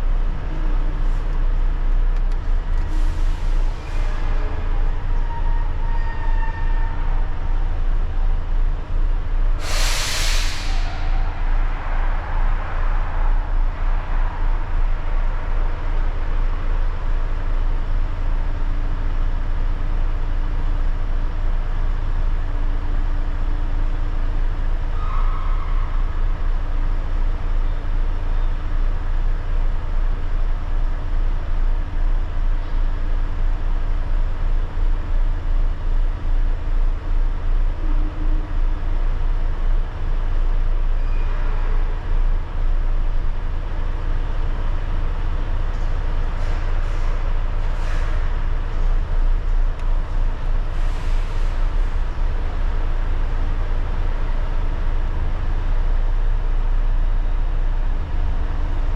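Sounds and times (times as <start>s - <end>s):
diesel truck engine rumbling: 0.0s - 58.9s
air brakes hissing: 2.8s - 4.3s, 9.6s - 13.2s, 46.4s - 49.1s, 50.7s - 52.1s.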